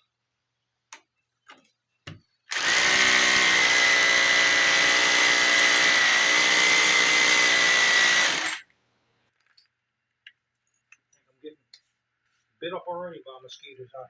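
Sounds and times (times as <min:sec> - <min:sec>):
hammer drill drilling into concrete: 0:02.5 - 0:08.7.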